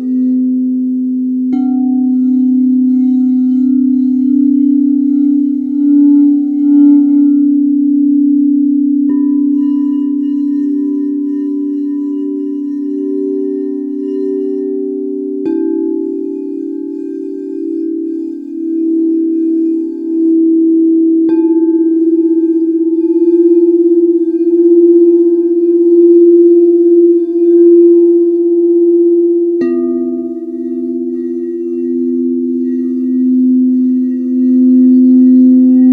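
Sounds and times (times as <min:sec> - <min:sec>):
bowl being struck: 0:00.0 - 0:35.9
singing bowls ringing: 0:00.0 - 0:35.9.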